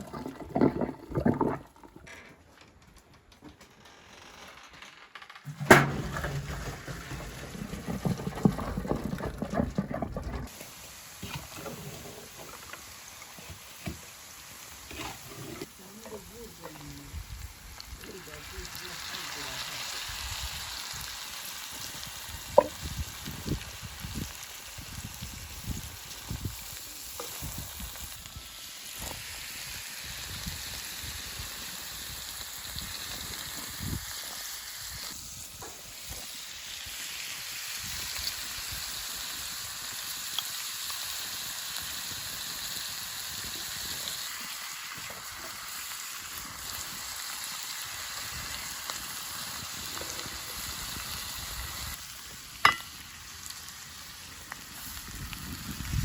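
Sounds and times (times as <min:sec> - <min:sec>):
food sizzling in a pan: 0:10.5 - 0:56.0.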